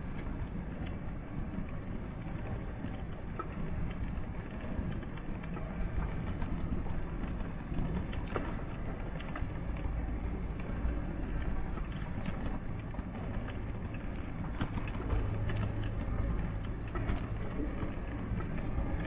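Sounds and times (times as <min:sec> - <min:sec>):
vehicle engine rumble: 0:05.2 - 0:19.0.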